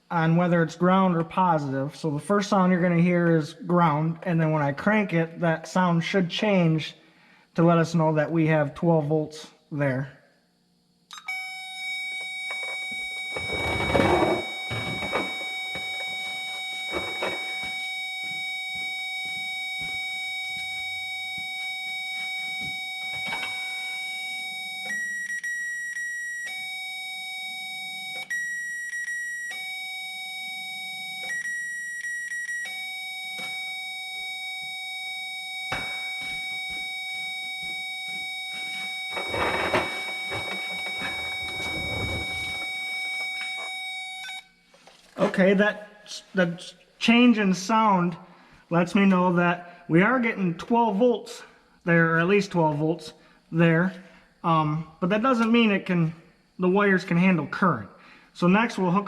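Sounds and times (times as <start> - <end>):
handling rustles: 37.4 - 43.8.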